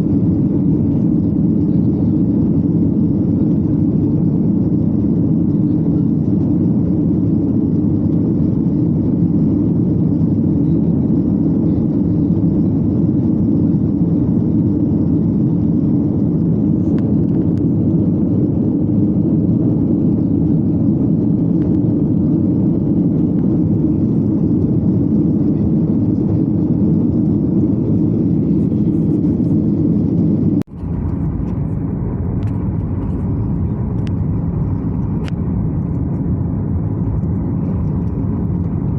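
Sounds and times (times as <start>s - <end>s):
airliner cabin engine drone: 0.0s - 38.9s.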